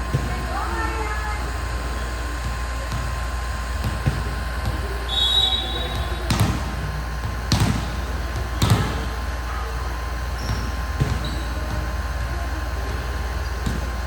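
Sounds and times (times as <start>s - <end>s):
volleyball being struck: 2.3s - 12.2s, 13.6s - 14.0s.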